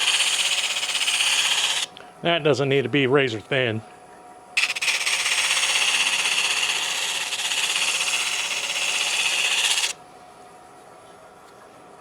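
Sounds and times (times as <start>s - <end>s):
sander hissing against wood: 0.0s - 1.9s, 4.6s - 10.0s.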